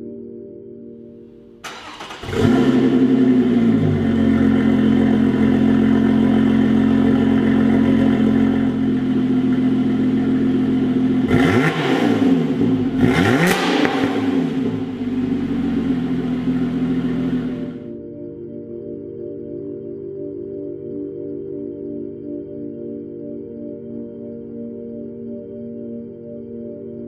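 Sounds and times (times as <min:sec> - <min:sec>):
car engine starting and idling: 0:01.6 - 0:17.9
engine throttle blips: 0:01.6 - 0:17.9.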